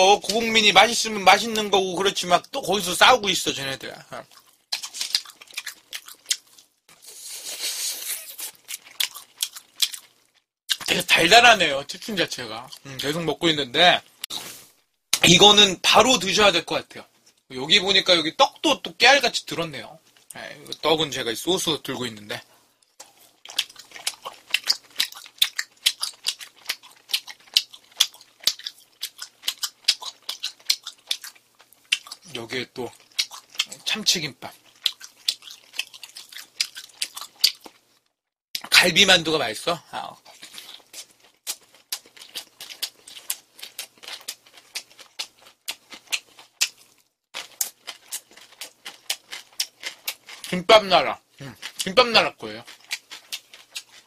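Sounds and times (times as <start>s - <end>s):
crispy fried chicken crunching: 4.2s - 11.1s, 23.0s - 38.7s, 40.0s - 54.0s.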